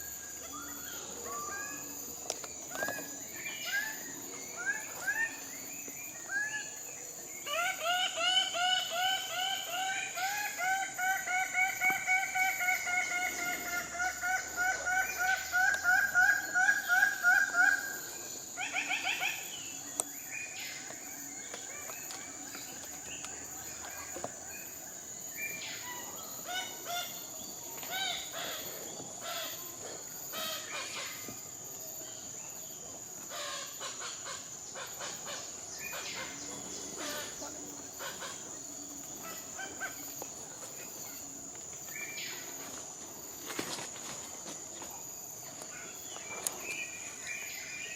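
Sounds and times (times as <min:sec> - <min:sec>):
high-pitched insect drone: 0:00.0 - 0:47.9.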